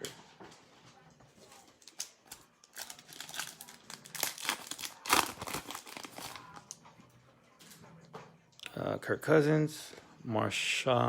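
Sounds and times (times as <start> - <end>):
card pack wrapper tearing: 1.8 - 6.8.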